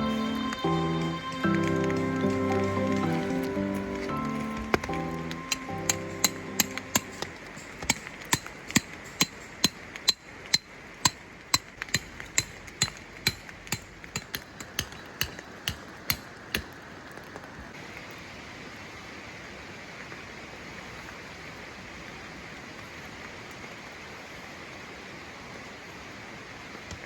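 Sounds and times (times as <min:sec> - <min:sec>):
hammer blows: 0:00.0 - 0:16.2
rain: 0:00.0 - 0:27.0
stream rushing: 0:00.0 - 0:27.0.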